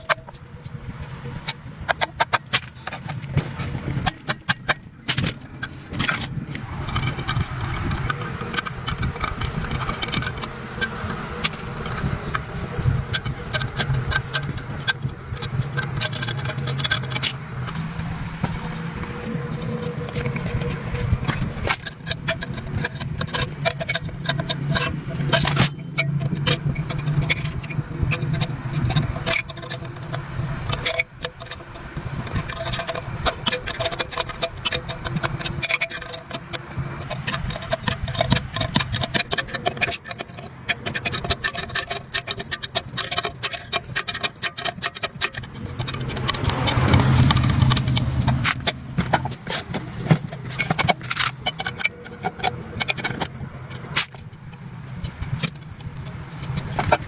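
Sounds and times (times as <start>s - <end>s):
low mechanical hum: 0.0s - 57.0s
metallic clanks and rattles: 0.0s - 57.0s.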